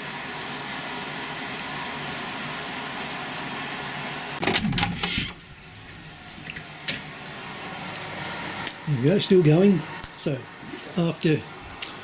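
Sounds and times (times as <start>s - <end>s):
dehumidifier fan whooshing: 0.0s - 12.0s.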